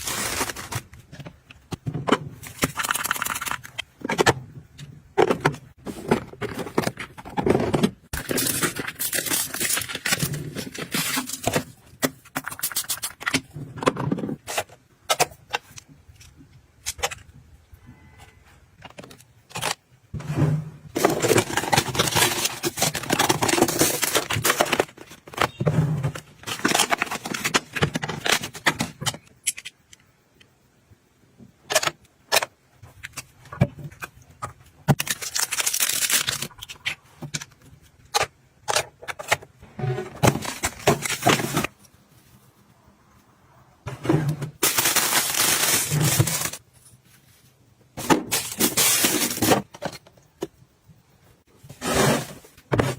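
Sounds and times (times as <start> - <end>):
items crackling rustling clattering: 0.0 - 4.4, 5.2 - 17.3, 20.9 - 29.3, 33.1 - 42.5, 43.9 - 50.5.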